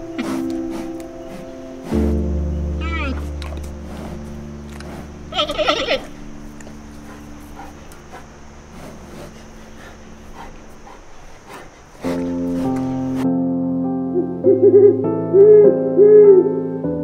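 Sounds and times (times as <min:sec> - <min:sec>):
soft piano music: 0:00.0 - 0:09.2, 0:12.0 - 0:17.0
animal whimper: 0:05.3 - 0:08.3.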